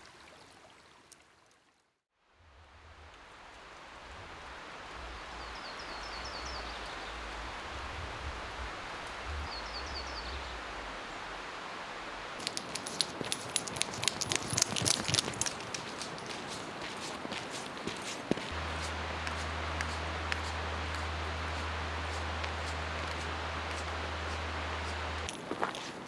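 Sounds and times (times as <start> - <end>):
outdoor background hiss: 2.5 - 26.0
crunching footsteps: 12.4 - 26.0.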